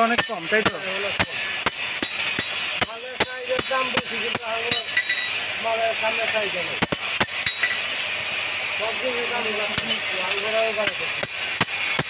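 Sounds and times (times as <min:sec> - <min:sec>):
hammer striking metal on anvil: 0:00.0 - 0:05.4, 0:06.2 - 0:07.8, 0:09.7 - 0:12.0.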